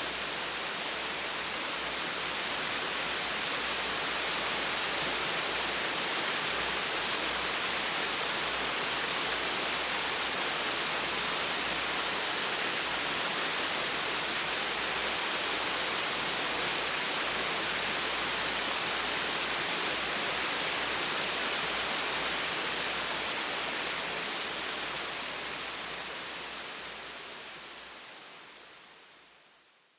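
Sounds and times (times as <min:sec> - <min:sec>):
small waterfall splashing: 0:00.0 - 0:28.9.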